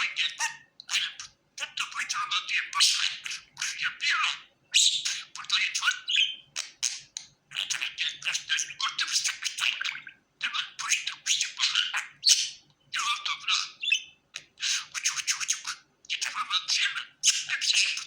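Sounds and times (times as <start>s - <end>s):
budgerigar warbling: 0.0s - 18.0s.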